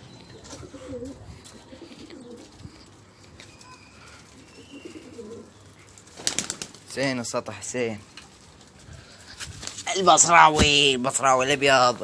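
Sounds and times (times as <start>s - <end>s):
pigeons cooing: 0.3s - 6.8s.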